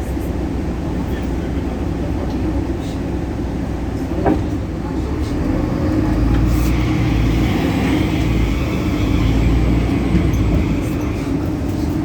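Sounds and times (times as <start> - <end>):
bus diesel engine running: 0.0 - 12.0
engine belt whine: 5.6 - 12.0.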